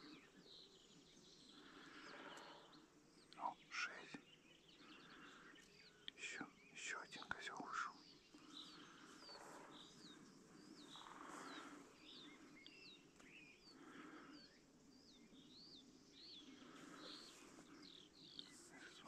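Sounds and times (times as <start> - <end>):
outdoor background noise: 0.0 - 19.0
small bird chirping: 0.0 - 19.0.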